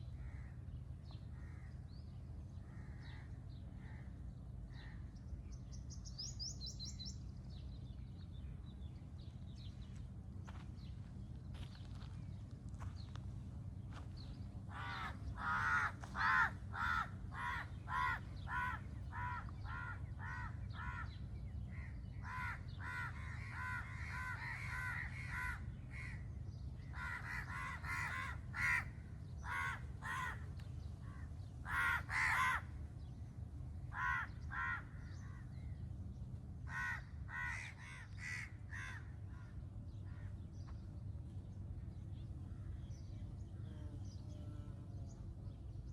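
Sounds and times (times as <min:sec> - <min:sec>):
crow cawing: 0:14.7 - 0:26.3, 0:26.9 - 0:32.8, 0:33.9 - 0:35.4, 0:36.7 - 0:40.3.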